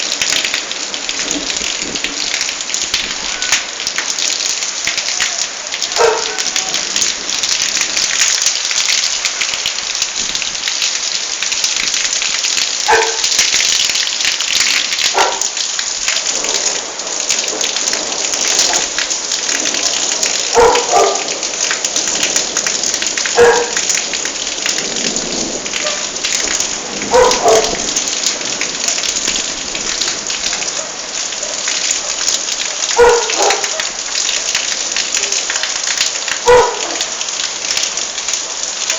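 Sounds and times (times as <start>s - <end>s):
heavy rain falling: 0.0s - 38.9s
dog barking: 5.8s - 6.8s, 12.8s - 13.3s, 15.1s - 15.6s, 18.6s - 18.9s, 20.4s - 21.5s, 23.3s - 23.9s, 25.8s - 26.1s, 27.0s - 27.9s, 30.5s - 34.0s, 36.4s - 37.2s.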